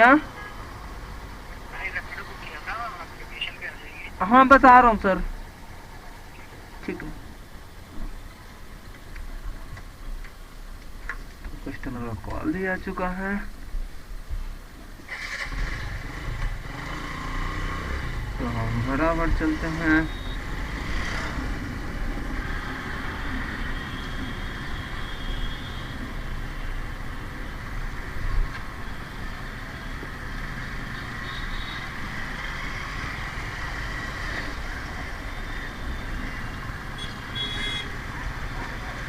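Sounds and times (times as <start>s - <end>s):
motorcycle engine: 15.1s - 24.1s.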